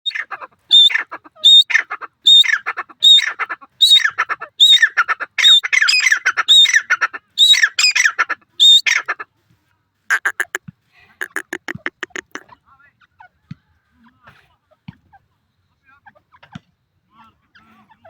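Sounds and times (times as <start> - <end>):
partridge calling: 7.4 - 8.9, 10.1 - 10.6, 11.2 - 12.4.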